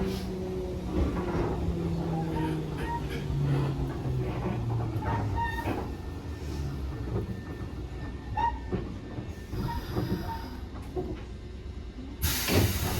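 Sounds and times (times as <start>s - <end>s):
train wheels rumbling on rails: 0.0s - 12.9s
wheel or brake squeals: 2.1s - 3.7s, 5.0s - 8.8s.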